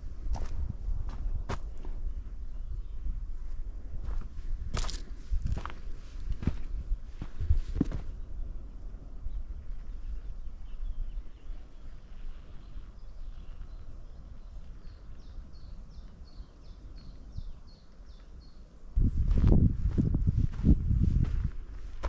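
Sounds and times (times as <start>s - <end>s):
low steady outdoor rumble: 0.0s - 22.0s
small songbird calling: 9.3s - 19.3s.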